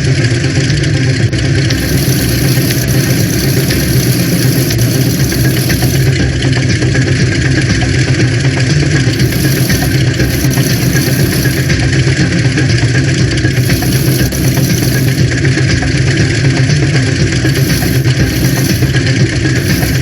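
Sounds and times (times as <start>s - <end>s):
engine running steadily: 1.7s - 6.2s, 9.1s - 11.8s, 13.5s - 15.3s, 17.4s - 20.0s.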